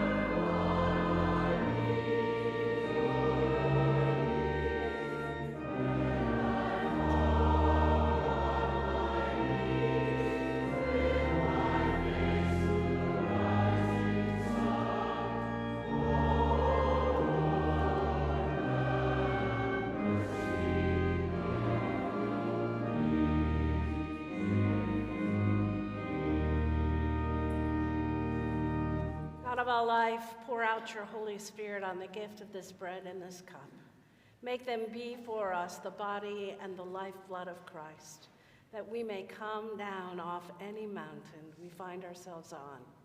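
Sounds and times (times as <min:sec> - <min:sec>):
choir singing: 0:00.0 - 0:29.3.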